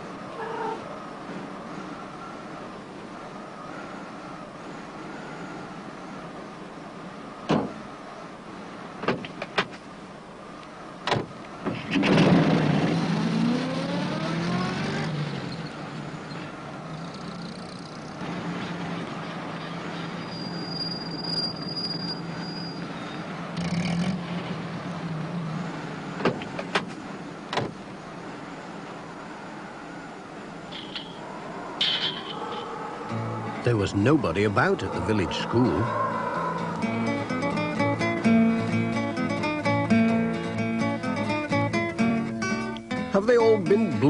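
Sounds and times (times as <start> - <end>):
van engine starting and revving: 11.1 - 16.4.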